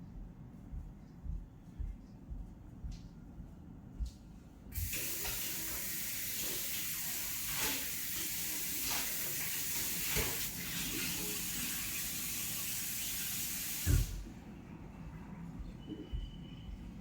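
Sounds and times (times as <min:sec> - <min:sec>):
water rushing hiss: 0:04.8 - 0:14.2.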